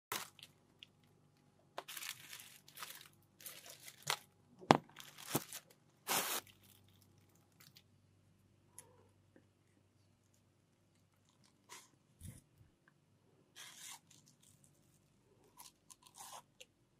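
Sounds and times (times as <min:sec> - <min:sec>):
watermelon crunching and tearing: 0:00.1 - 0:00.6, 0:01.8 - 0:04.3, 0:13.6 - 0:16.7.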